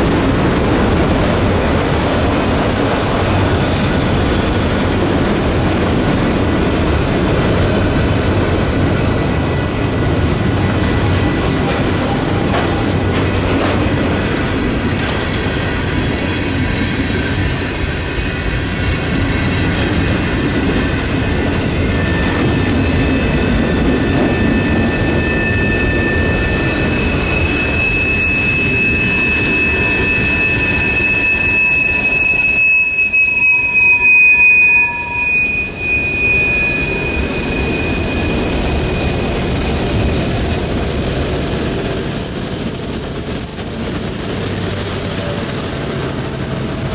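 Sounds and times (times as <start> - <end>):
train wheels rumbling on rail: 0.0 - 46.9
high wheel squeal: 9.0 - 15.4, 19.9 - 46.9.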